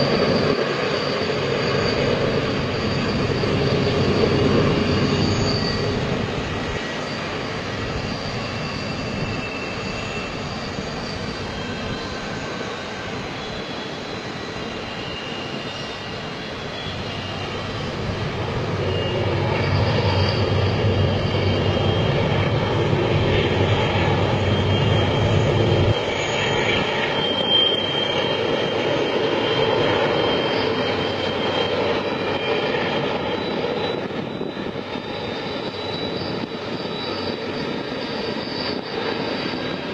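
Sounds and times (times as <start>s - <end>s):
faint high squeals: 0.0s - 39.9s
freight train rumbling: 0.0s - 39.9s.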